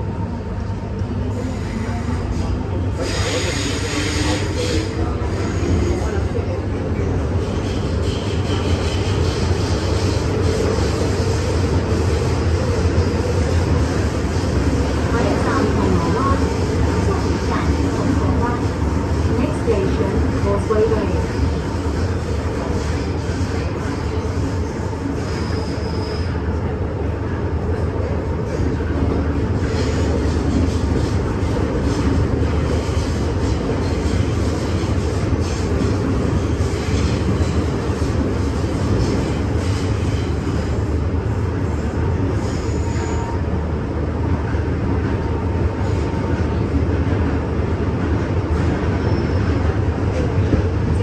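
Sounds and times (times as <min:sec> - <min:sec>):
train wheels rumbling on rail: 0:00.0 - 0:51.0
high-pitched wheel squeal: 0:25.2 - 0:26.4, 0:42.4 - 0:43.4, 0:49.0 - 0:49.6.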